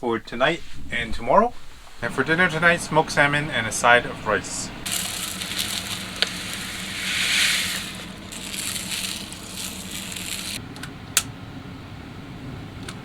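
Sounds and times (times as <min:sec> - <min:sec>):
food sizzling in a frying pan: 0:04.8 - 0:10.6.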